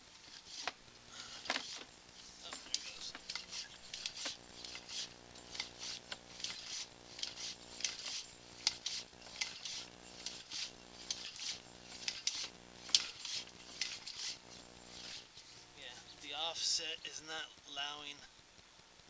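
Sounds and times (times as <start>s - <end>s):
camera cable scraping and rattling in pipe: 0.0s - 16.0s
electrical hum: 0.0s - 18.5s.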